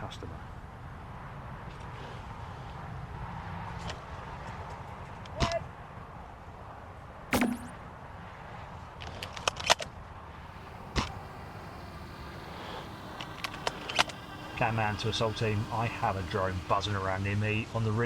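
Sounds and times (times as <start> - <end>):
outdoor background hiss: 10.4 - 18.0.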